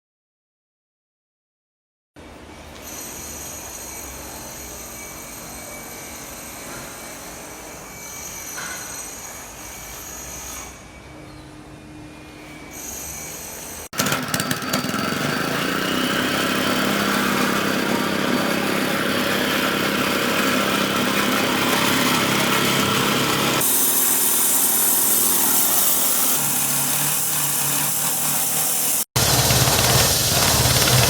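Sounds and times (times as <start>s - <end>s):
concrete cutting saw running: 13.9s - 31.0s.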